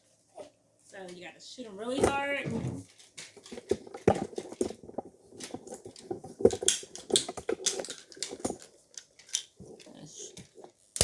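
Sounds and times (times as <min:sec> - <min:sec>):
plastic toy pieces clicking: 0:05.4 - 0:11.0.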